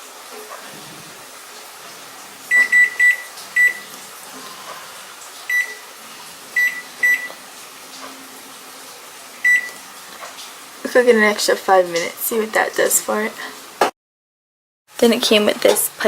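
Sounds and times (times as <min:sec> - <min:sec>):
oven control panel beeps: 0:02.5 - 0:03.9, 0:05.5 - 0:05.8, 0:06.6 - 0:07.4, 0:09.5 - 0:09.8.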